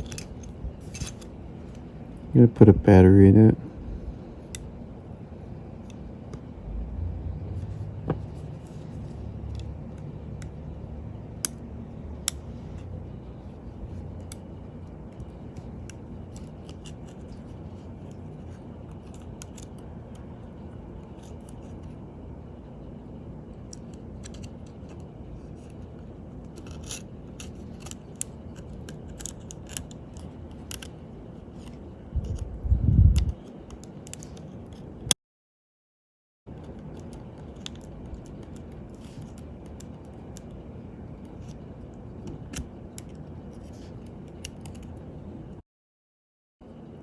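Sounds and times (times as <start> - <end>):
low steady hum: 0.0 - 35.2, 36.5 - 45.6, 46.6 - 47.0
light scraping of tweezers: 26.6 - 28.0.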